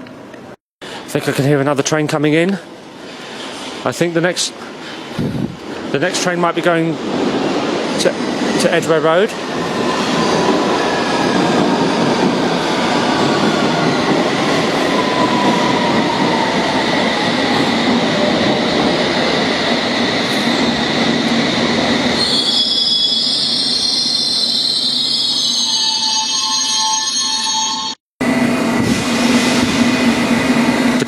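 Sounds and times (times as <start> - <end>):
train whine slowing: 8.0 - 31.0
high wheel squeal: 22.1 - 28.0.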